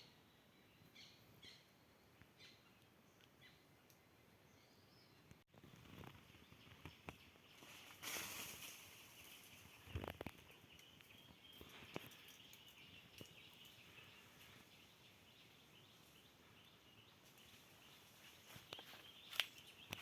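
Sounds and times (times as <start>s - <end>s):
short rustle: 7.6s - 9.8s.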